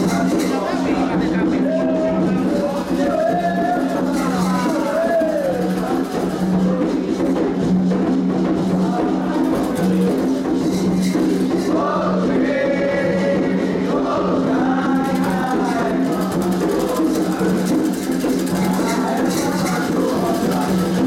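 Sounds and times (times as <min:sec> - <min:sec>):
drums and percussion: 0:00.0 - 0:21.0
voices singing together: 0:00.0 - 0:21.0.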